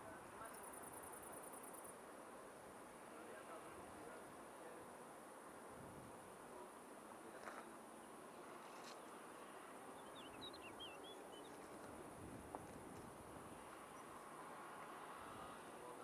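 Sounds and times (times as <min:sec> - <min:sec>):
steady high hiss: 0:00.0 - 0:16.0
small bird twittering: 0:10.0 - 0:11.8.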